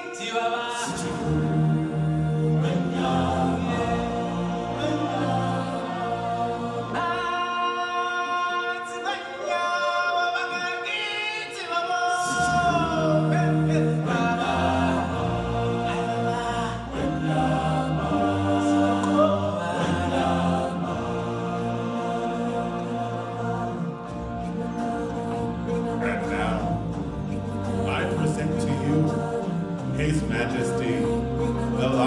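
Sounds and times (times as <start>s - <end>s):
choir singing held chords: 0.0s - 32.0s.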